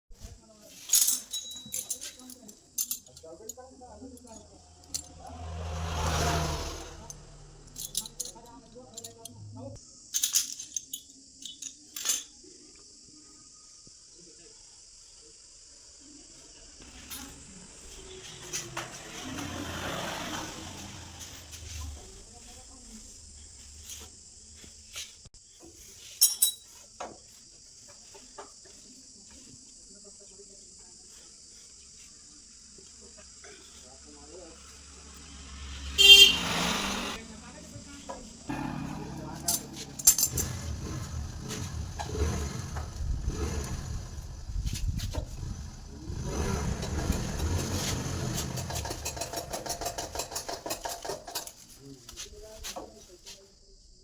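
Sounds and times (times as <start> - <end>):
metal parts clinking: 0.7 - 5.2, 7.0 - 9.4, 10.1 - 12.4, 26.0 - 26.8, 39.4 - 40.8
motor rumbling: 3.6 - 9.8, 16.8 - 23.9, 34.6 - 49.5.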